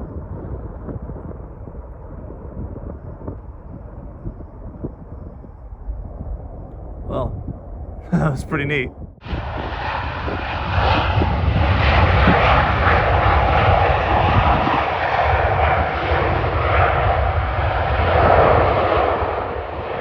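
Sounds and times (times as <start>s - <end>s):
wind buffeting microphone: 0.0s - 20.0s
jet engine rushing: 8.5s - 20.0s.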